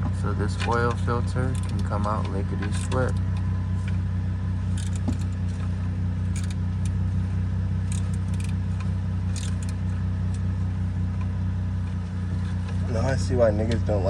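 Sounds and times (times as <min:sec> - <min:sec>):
low mechanical hum: 0:00.0 - 0:14.0
hand tools clicking on bolts: 0:04.8 - 0:05.3, 0:07.9 - 0:08.6, 0:09.3 - 0:09.8.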